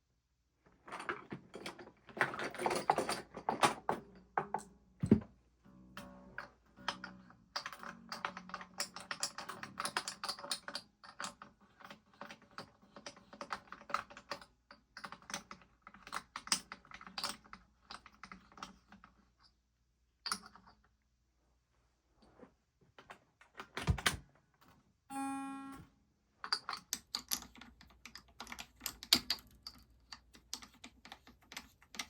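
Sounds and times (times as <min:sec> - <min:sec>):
guitar hardware clicking and rattling: 0:00.8 - 0:19.2, 0:26.4 - 0:32.0.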